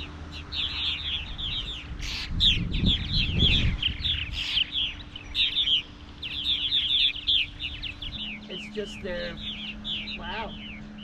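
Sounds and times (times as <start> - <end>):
flock of birds chirping: 0.0 - 11.0.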